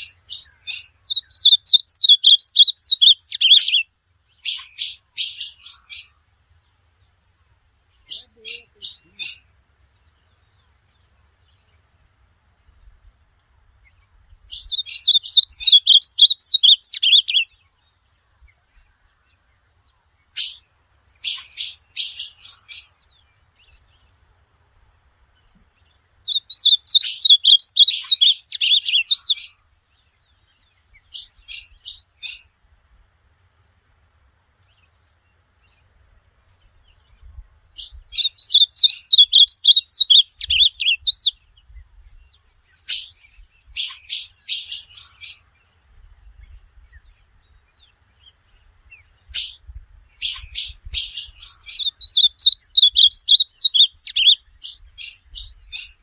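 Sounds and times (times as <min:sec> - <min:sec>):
bird singing high warbled notes: 0:00.0 - 0:03.9, 0:14.5 - 0:17.6, 0:26.3 - 0:29.6, 0:37.7 - 0:41.4, 0:49.3 - 0:56.0.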